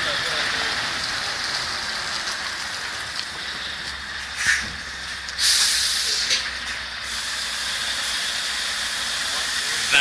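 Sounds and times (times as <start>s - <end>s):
steady hiss: 5.4s - 6.4s.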